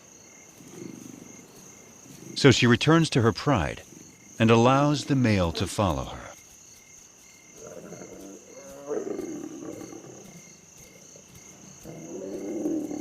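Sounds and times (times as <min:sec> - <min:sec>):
crickets chirring: 0:00.0 - 0:13.0
lions calling: 0:02.0 - 0:06.3, 0:11.8 - 0:13.0.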